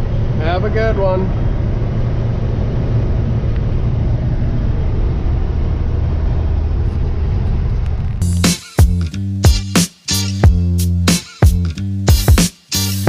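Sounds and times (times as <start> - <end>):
truck engine and road drone: 0.0 - 13.0
music with a beat: 8.2 - 13.0.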